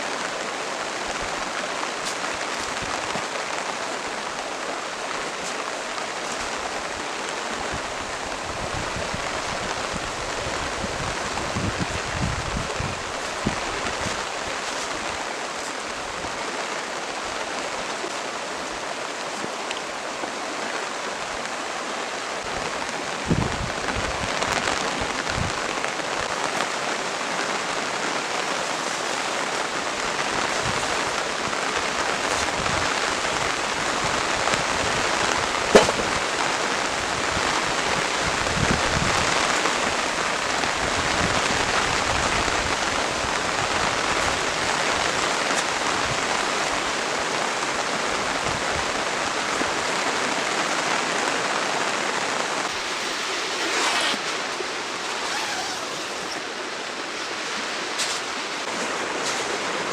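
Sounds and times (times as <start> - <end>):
rain falling: 0.0 - 59.9
scattered knocks: 35.7 - 36.2.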